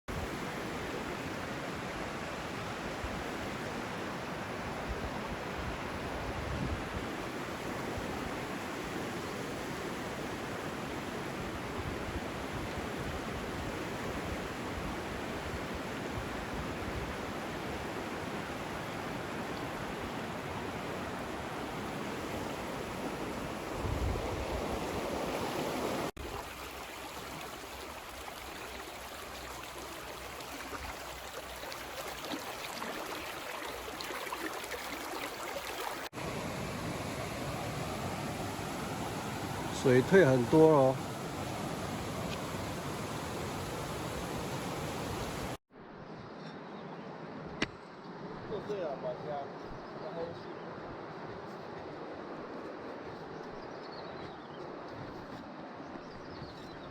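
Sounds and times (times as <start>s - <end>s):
creek water flowing: 0.1s - 45.6s.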